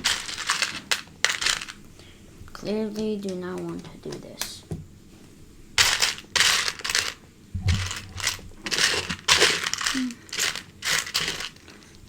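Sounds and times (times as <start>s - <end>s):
plastic pieces and packaging rustling: 0.0s - 1.8s, 5.8s - 12.0s.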